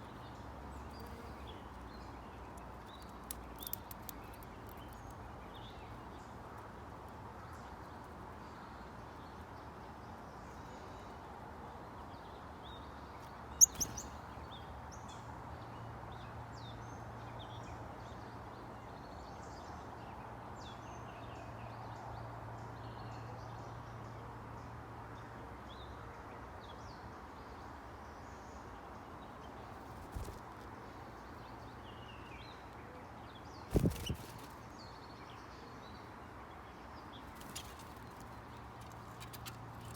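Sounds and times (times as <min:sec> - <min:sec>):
steady outdoor hiss: 0:00.0 - 0:39.9
small birds chirping and calling: 0:02.6 - 0:05.7, 0:13.5 - 0:14.3, 0:33.6 - 0:35.0.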